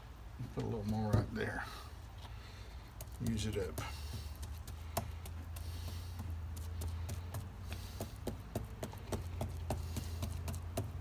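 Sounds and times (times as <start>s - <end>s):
steady low hum: 0.0s - 11.0s
light dabbing taps: 0.5s - 1.5s.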